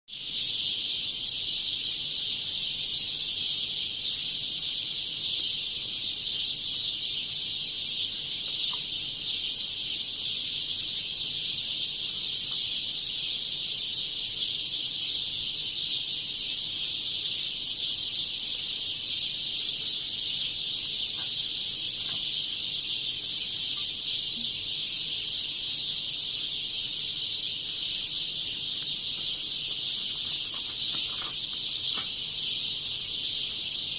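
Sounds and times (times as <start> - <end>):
sparrows chirping chorus: 0.1 - 33.9.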